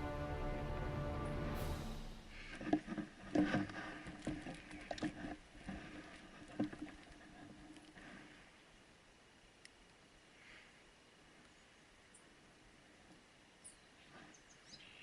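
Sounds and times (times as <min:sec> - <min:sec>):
background music: 0:00.0 - 0:02.7
light clicks and crackles: 0:02.5 - 0:08.6, 0:09.5 - 0:10.1.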